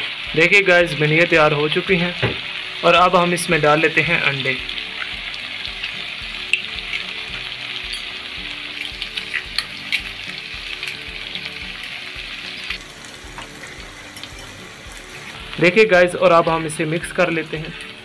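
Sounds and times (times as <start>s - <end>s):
food sizzling in oil: 0.0s - 18.0s
eggs cracking: 8.7s - 11.2s.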